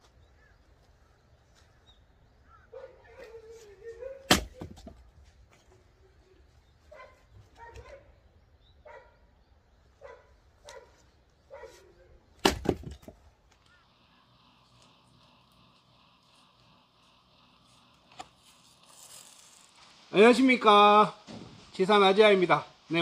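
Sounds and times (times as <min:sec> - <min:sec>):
axe splitting firewood: 0:04.2 - 0:05.1, 0:12.4 - 0:13.3.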